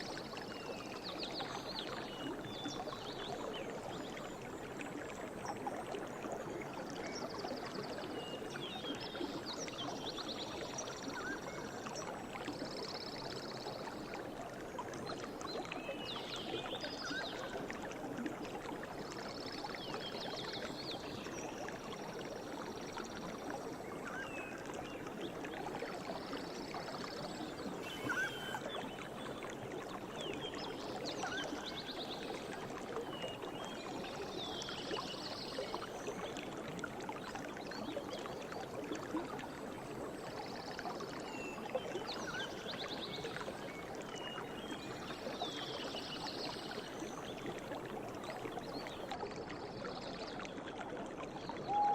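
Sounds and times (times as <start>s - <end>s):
river water flowing: 0.0s - 51.9s
birds trilling and chirping: 27.8s - 28.6s.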